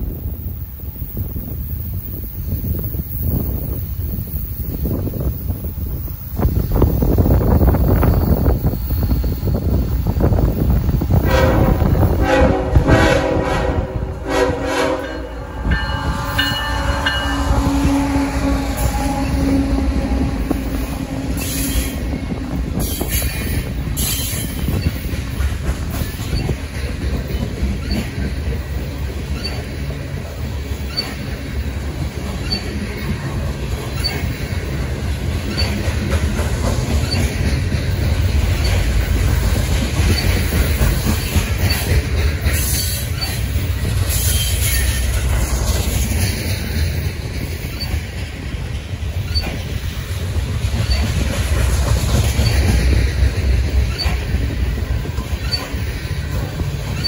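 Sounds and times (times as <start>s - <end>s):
train wheels rumbling on rails: 0.0s - 57.0s
locomotive horn: 11.2s - 22.4s.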